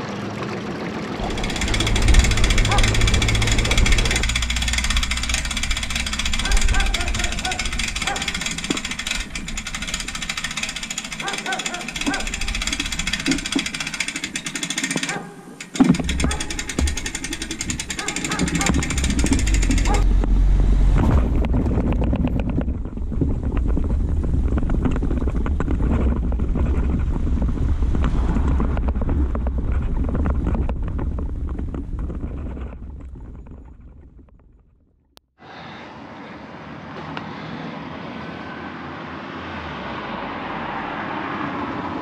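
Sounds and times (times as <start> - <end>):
boat engine running: 0.9 - 32.2
wind buffeting microphone: 1.2 - 11.2, 16.0 - 34.4
steady wind noise: 1.2 - 34.4.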